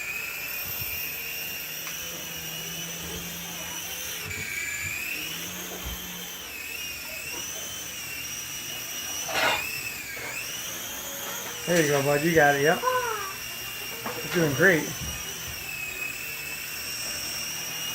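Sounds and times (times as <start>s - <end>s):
toy helicopter rotor whine: 0.0s - 17.9s.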